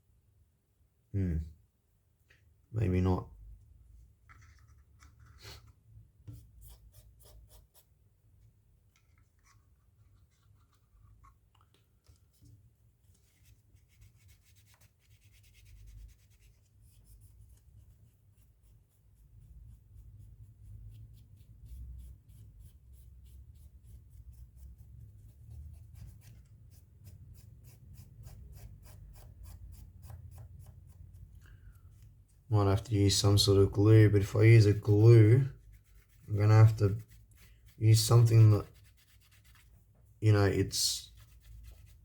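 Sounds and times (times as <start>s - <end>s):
scrubbing adhesive on phone cover: 34.2s - 40.0s.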